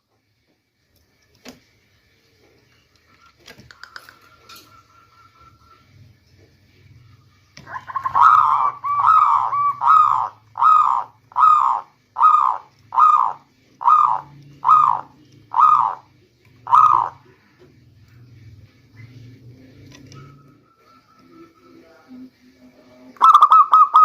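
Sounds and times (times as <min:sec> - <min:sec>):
dove cooing: 0:07.6 - 0:17.6, 0:23.2 - 0:24.0.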